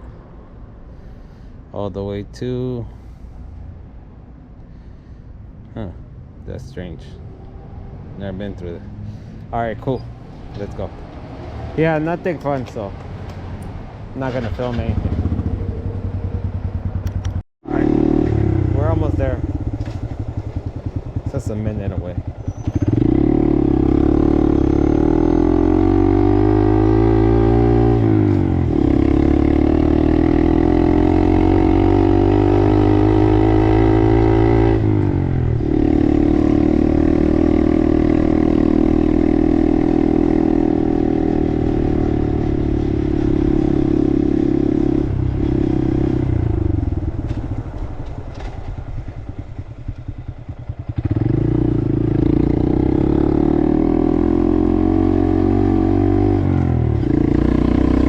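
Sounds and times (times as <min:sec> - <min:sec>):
motorcycle engine revving and idling: 0:14.2 - 0:58.0.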